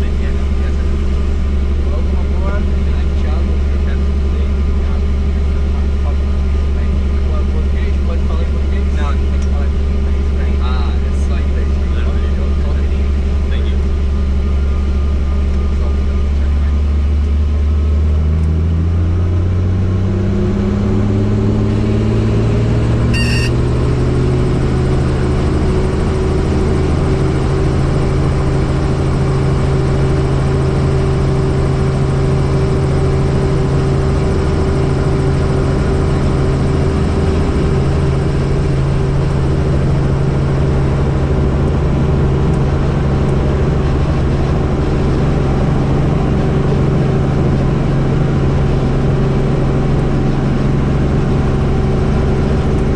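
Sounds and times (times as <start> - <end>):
helicopter turbine and rotor: 18.8 - 52.9
short high beep: 23.1 - 23.7.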